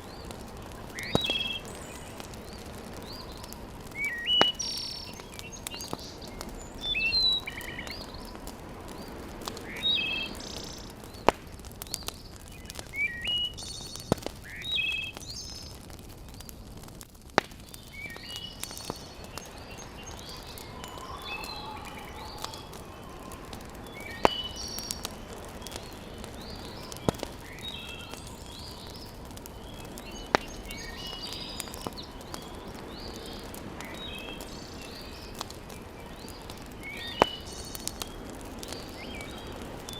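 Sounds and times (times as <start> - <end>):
wood fire crackles: 0.0 - 39.9
birds chirping and calling: 0.2 - 11.3, 17.8 - 38.0.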